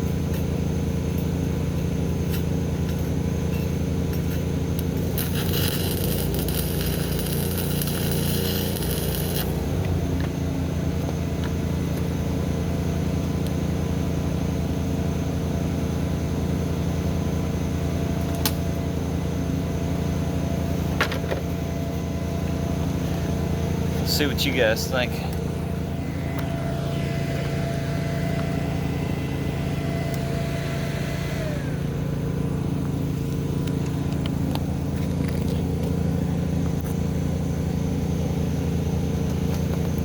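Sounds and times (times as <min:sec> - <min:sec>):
engine running: 0:00.0 - 0:40.0
crackling hiss: 0:04.2 - 0:09.8.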